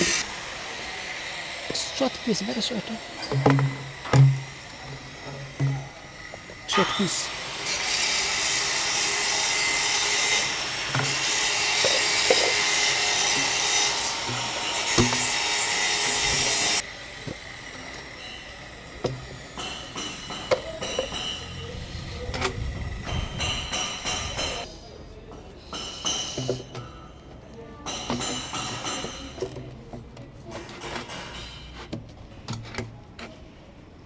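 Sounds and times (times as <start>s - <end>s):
saw cutting plastic pipe: 0.0s - 21.4s
pipe pieces knocking: 3.2s - 6.6s, 10.4s - 16.8s, 19.0s - 21.5s.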